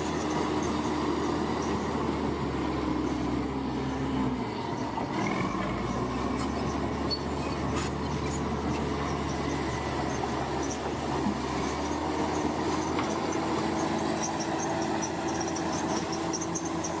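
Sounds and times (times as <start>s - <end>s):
bulldozer diesel engine running: 0.0s - 17.0s
faint metallic squeal: 4.1s - 17.0s.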